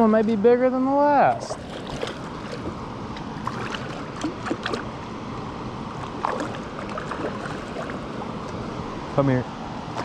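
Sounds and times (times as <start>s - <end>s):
short splashes: 1.3s - 2.7s, 3.4s - 4.9s, 6.0s - 8.4s
river water washing around kayak: 1.3s - 10.0s.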